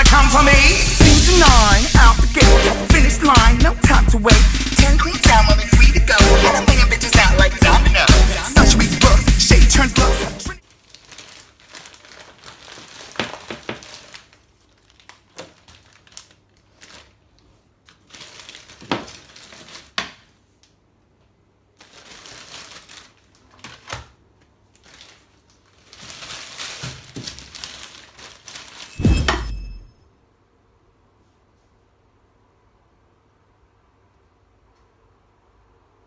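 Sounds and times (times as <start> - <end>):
rustling and crinkling: 10.6 - 29.0
heavy thump: 29.0 - 29.9.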